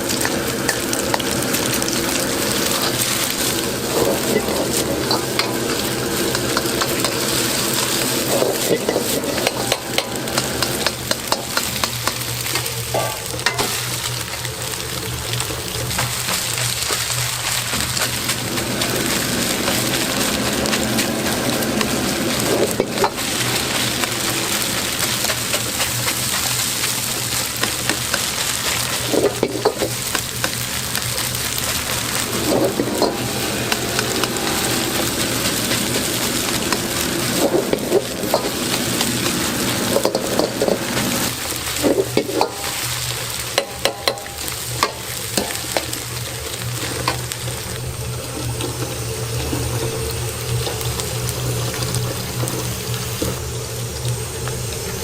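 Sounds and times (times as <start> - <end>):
rice sizzling in a hot pan: 0.0 - 55.0
spatula scraping a pan: 16.0 - 43.0.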